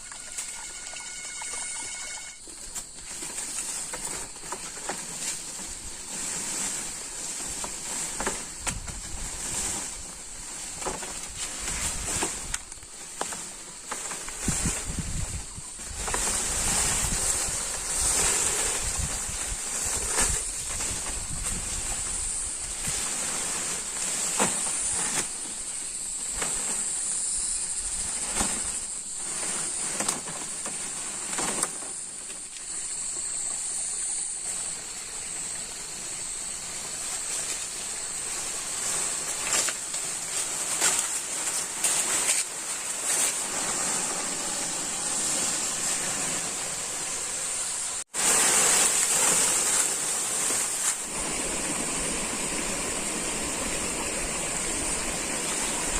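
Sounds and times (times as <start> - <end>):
flowing water rushing: 0.0 - 2.4, 43.4 - 55.9
insects buzzing: 0.0 - 55.9.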